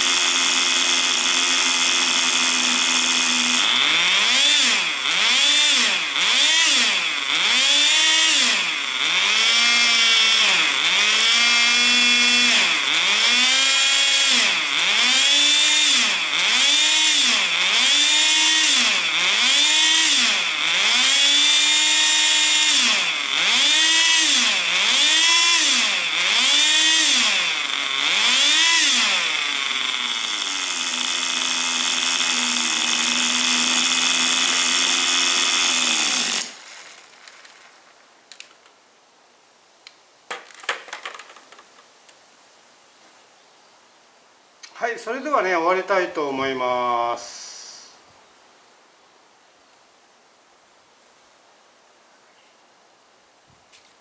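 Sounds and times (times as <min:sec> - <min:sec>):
small nitro engine revving: 0:00.0 - 0:37.8.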